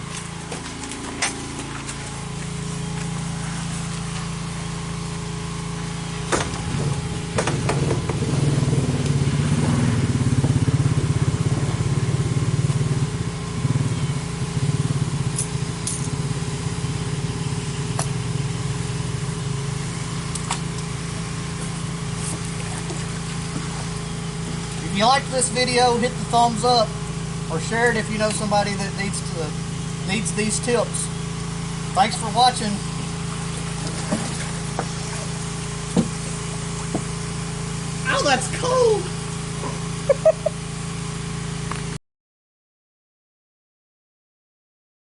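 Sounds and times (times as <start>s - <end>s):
vehicle engine running: 0.0s - 42.0s.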